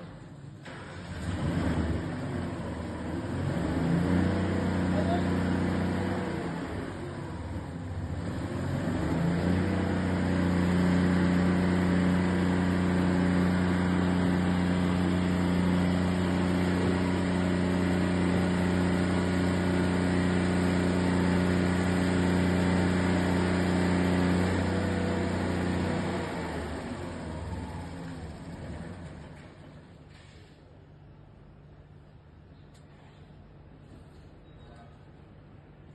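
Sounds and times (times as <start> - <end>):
machine droning: 2.8 - 30.0.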